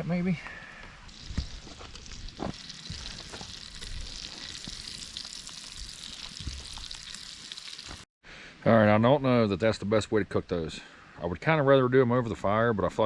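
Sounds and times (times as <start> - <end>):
food sizzling in hot fat: 1.1 - 8.1.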